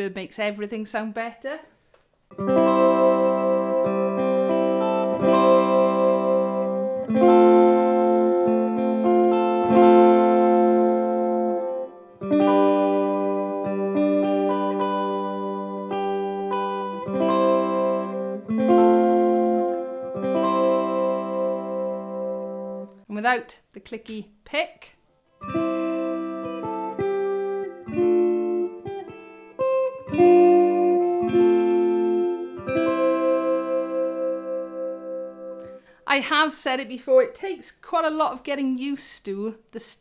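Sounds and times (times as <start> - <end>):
electric ukulele strummed chords: 2.3 - 22.9, 25.4 - 35.8.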